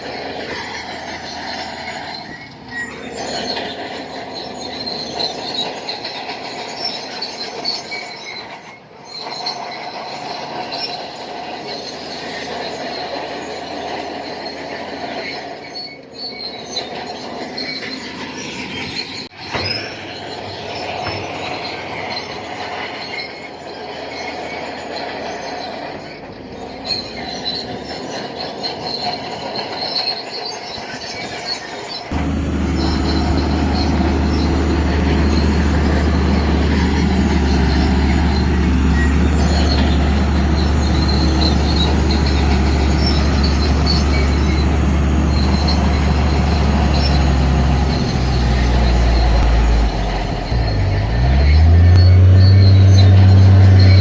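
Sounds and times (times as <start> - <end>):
diesel engine drone: 0.0 - 7.8, 32.1 - 54.0
bulldozer tracks squealing and grinding: 0.0 - 54.0.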